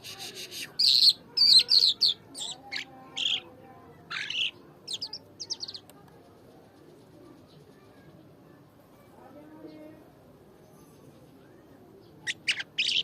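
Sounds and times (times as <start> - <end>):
songbird singing: 0.1 - 6.0, 10.6 - 13.0.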